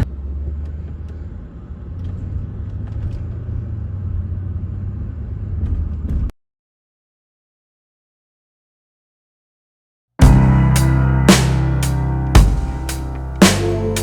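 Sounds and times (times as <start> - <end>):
car interior rumble: 10.2 - 14.0.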